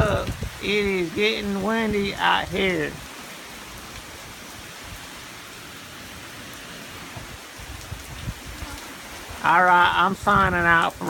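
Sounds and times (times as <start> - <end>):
wind buffeting microphone: 0.0 - 3.1, 6.9 - 11.0
wind and rain hissing: 0.0 - 11.0.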